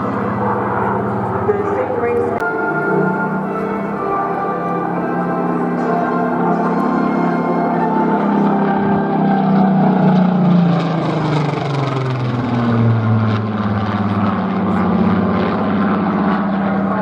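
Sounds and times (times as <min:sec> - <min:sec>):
propeller plane engine passing: 0:00.0 - 0:17.0.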